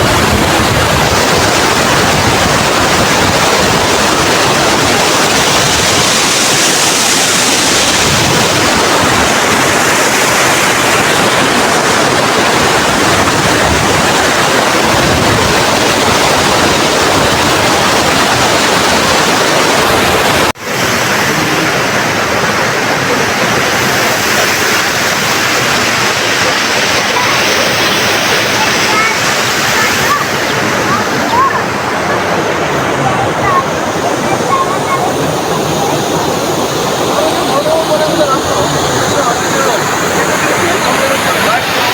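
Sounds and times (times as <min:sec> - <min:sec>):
fast-flowing river rushing: 0:00.0 - 0:41.9.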